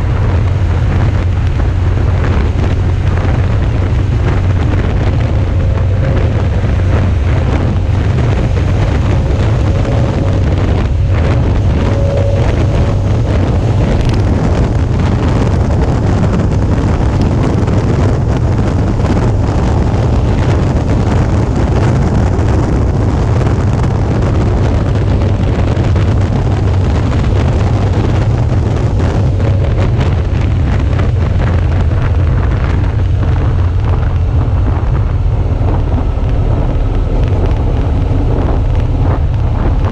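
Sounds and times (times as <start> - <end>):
motorcycle engine running: 0.0 - 39.9
road noise: 0.0 - 39.9
wind buffeting microphone: 0.0 - 39.9.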